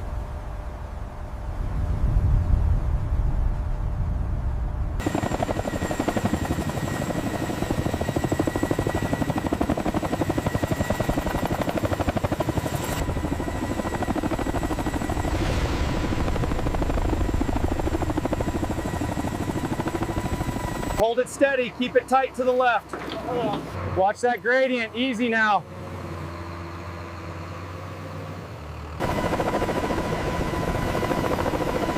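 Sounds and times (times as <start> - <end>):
low rumble: 0.0 - 5.0, 13.0 - 19.1
turbine whine: 0.0 - 27.6, 28.6 - 31.9
helicopter rotor chopping: 5.0 - 25.7, 29.0 - 31.9.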